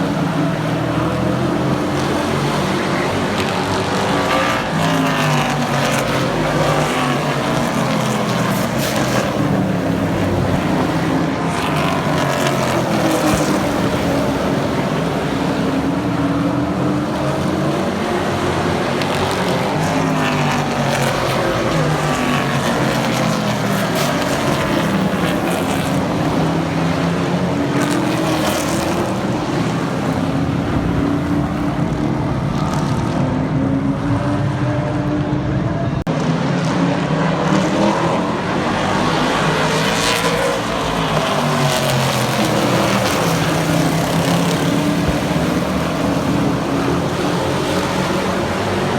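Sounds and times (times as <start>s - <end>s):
race truck engines: 0.0s - 48.9s.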